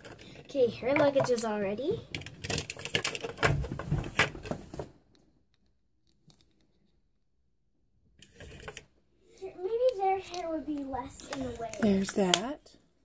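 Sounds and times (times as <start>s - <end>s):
plastic toy pieces clicking: 0.0s - 1.5s, 2.1s - 3.5s.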